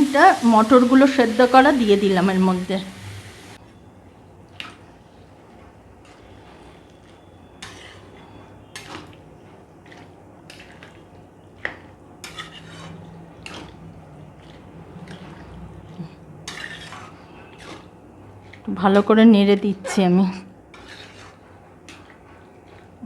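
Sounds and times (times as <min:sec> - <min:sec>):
spoon scraping and clinking pan: 0:06.1 - 0:09.2, 0:11.6 - 0:15.5, 0:16.4 - 0:18.6, 0:20.7 - 0:22.9.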